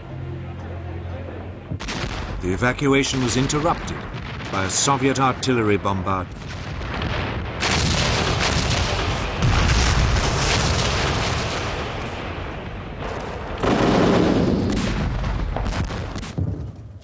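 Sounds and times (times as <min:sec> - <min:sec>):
loud artillery blasts: 0:01.7 - 0:17.0
rumbling of shell bursts: 0:01.8 - 0:17.0.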